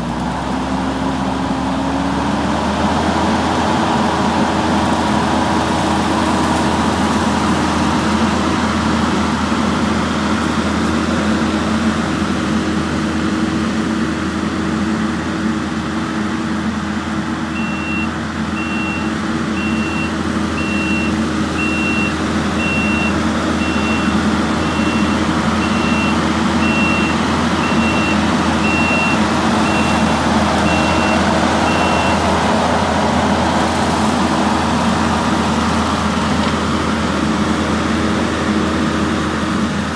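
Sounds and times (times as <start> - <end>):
skid steer engine running: 0.0 - 39.9
backup alarm beeping: 17.6 - 32.2.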